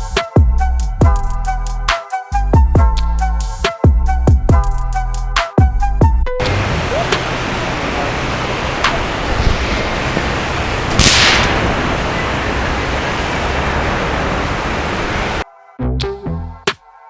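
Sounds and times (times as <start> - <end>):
hissing burst: 6.4 - 15.4
loud rushing noise: 6.4 - 15.4
sharp cracks: 6.4 - 15.4.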